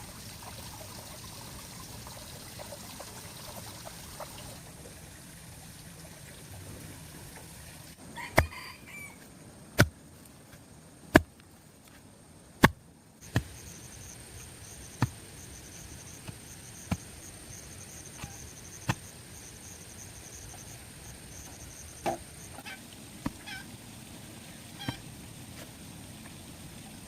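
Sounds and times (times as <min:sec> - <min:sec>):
short pitched calls: 0:13.2 - 0:23.7, 0:24.7 - 0:25.0.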